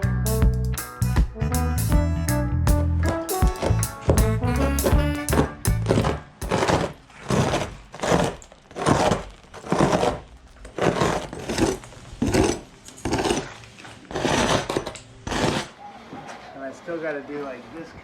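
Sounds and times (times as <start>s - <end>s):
hand tool scraping boat hull: 4.6s - 15.8s.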